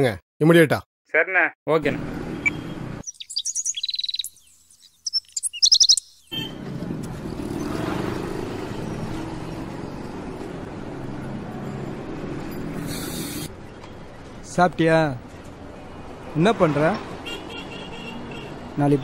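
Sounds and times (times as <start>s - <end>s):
small birds twittering: 2.4s - 6.5s.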